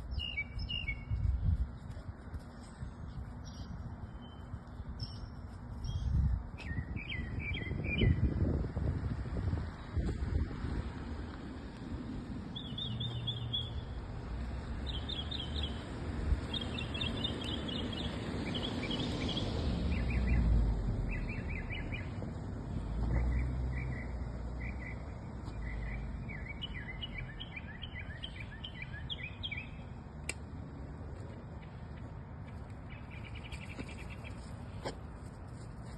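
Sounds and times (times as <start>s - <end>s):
songbird chirping: 0.0s - 8.2s, 12.5s - 14.0s, 14.6s - 22.3s, 23.0s - 34.8s
steady low rumble: 0.0s - 14.9s.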